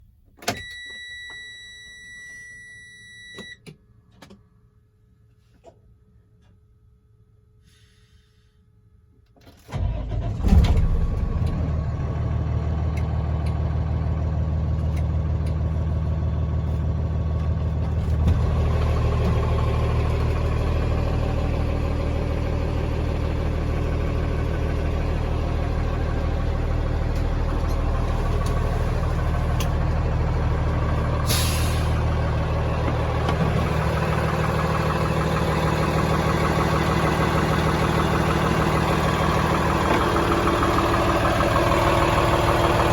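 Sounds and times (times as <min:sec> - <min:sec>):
diesel truck engine starting and idling: 0:09.5 - 0:42.9.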